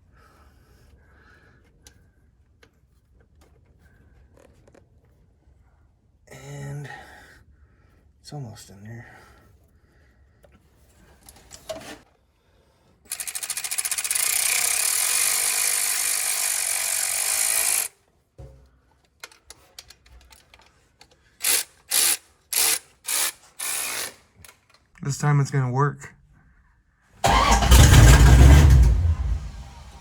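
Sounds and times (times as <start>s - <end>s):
power tool running: 13.1s - 17.9s, 21.4s - 24.2s.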